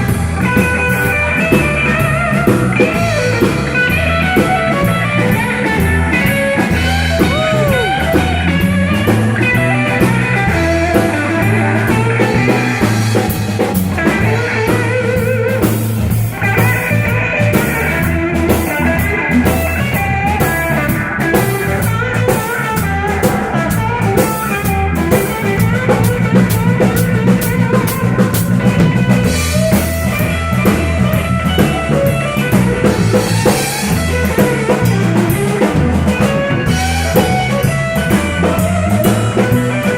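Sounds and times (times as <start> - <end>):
bass guitar: 0.0 - 39.9
blues guitar lead lines: 0.0 - 39.9
drum kit with cymbal beat: 0.0 - 39.9.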